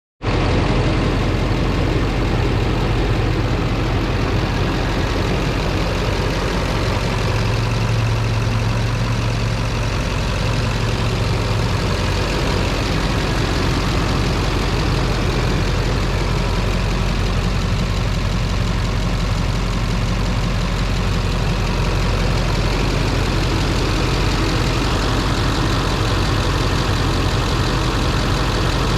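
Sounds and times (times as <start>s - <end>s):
diesel truck engine idling: 0.2s - 28.9s.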